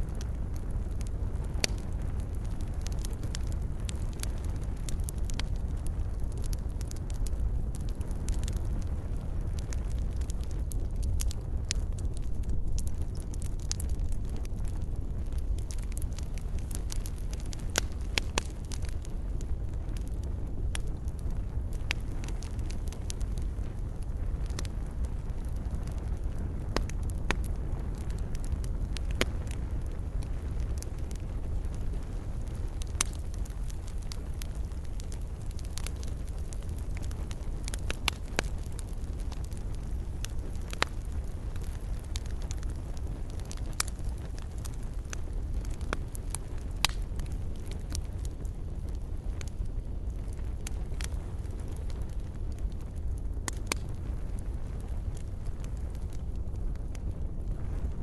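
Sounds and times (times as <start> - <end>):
fire crackles and pops: 0.0 - 58.0
wood fire rumbling: 0.0 - 58.0.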